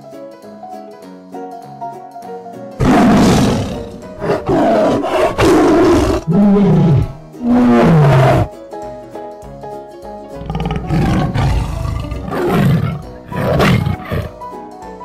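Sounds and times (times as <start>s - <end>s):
tigers growling and roaring: 2.8s - 8.5s, 10.4s - 14.4s.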